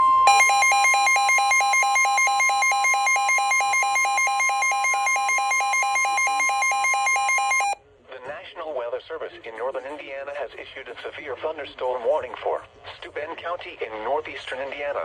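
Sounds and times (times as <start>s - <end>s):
fast two-pitch beeping: 0.3s - 7.8s
weather radio alarm tone: 0.3s - 7.8s.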